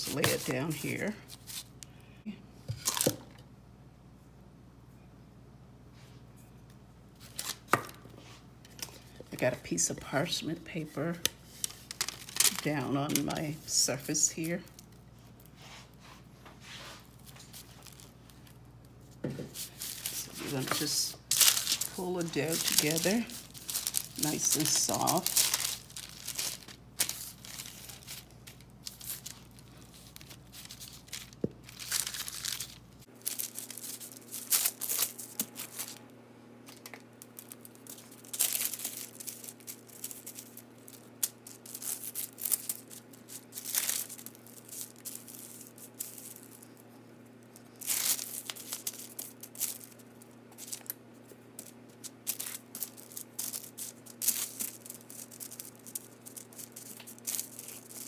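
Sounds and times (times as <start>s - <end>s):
parchment paper crinkling: 0.0s - 1.8s, 11.2s - 15.5s, 17.0s - 18.6s, 19.5s - 36.0s, 36.7s - 58.0s.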